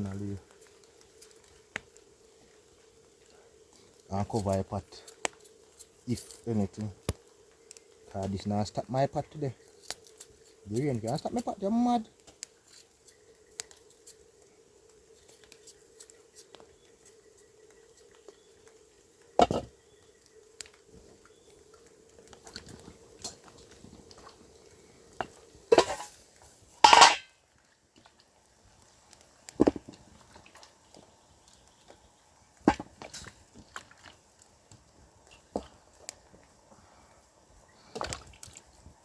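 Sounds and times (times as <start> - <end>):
cooking pot and utensils clattering: 25.2 - 26.2, 26.8 - 27.3.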